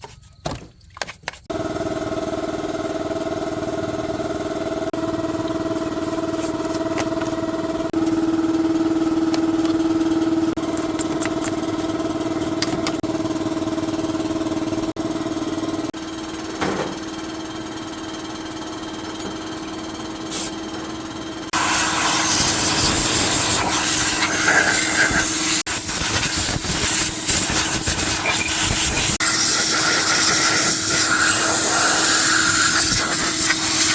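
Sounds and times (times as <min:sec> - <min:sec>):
steady mechanical hum: 0:00.0 - 0:33.9
loud rough hissing noise: 0:21.6 - 0:33.9.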